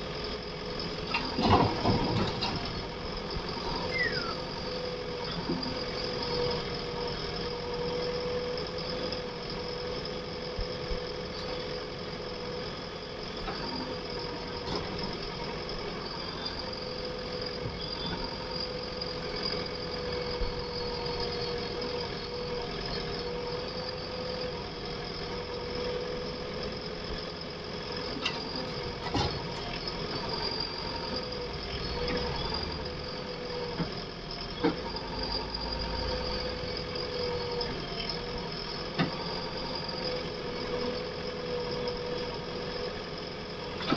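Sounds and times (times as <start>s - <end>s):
diesel engine whining: 0.0s - 43.9s.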